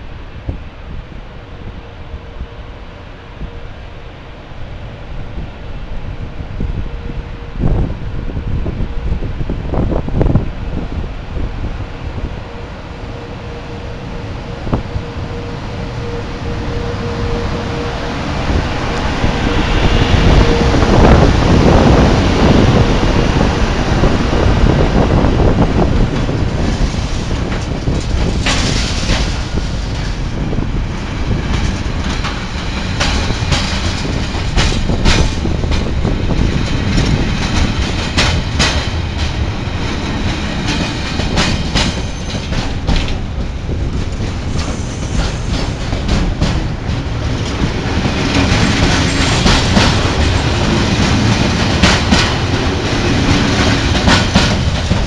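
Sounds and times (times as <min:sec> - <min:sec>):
train rumbling past: 0:00.0 - 0:55.0
wheels clicking on rail joints: 0:25.8 - 0:55.0.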